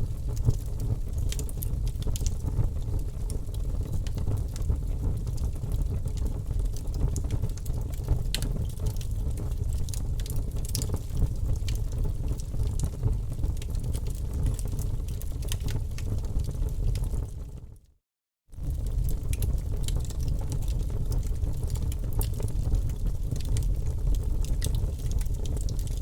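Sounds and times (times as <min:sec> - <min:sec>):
fire rumbling: 0:00.0 - 0:17.5, 0:18.5 - 0:26.0
fire crackling and popping: 0:00.1 - 0:17.5, 0:18.6 - 0:26.0.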